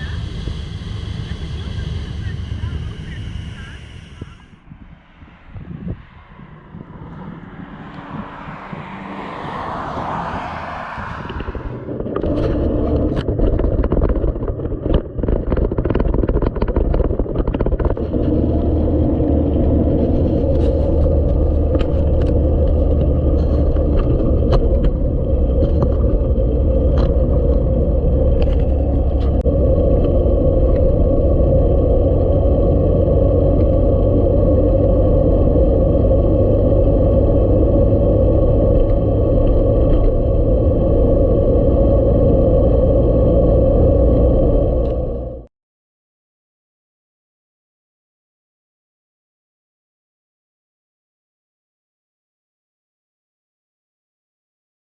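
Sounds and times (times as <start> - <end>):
vehicle engine rumbling: 0.0 - 45.5
rattling clicks and scrapes: 11.3 - 30.9.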